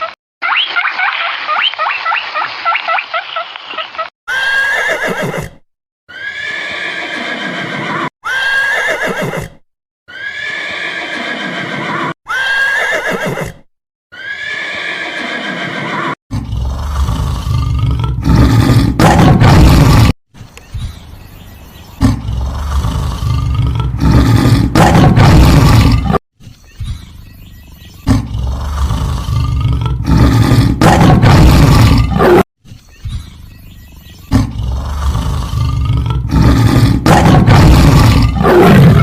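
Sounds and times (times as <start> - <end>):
horse whinnying: 4.3 - 16.2.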